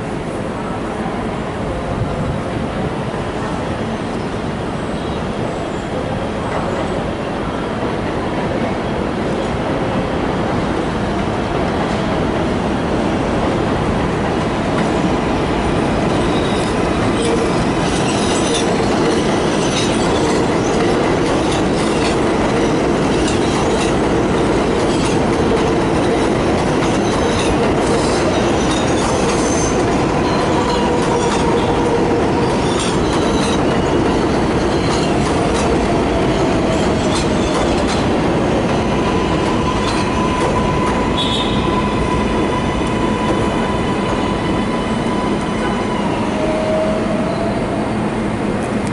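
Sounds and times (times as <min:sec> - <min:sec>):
train rolling on rails: 0:00.0 - 0:48.9
wheel squeal: 0:39.0 - 0:47.8.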